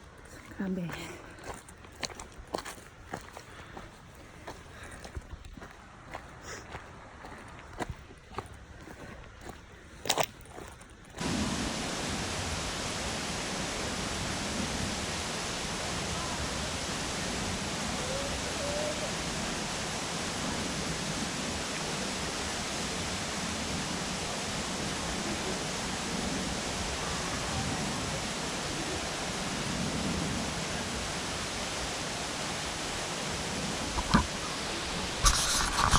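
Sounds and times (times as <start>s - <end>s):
water rushing: 10.6s - 35.9s.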